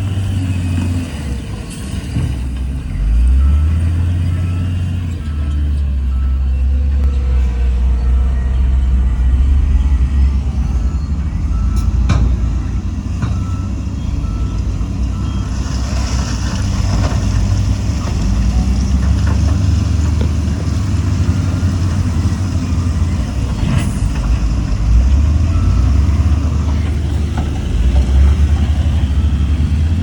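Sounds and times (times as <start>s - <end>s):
reversing alarm beeping: 0.0s - 16.3s, 20.5s - 30.0s
diesel machinery rumbling: 0.0s - 30.0s.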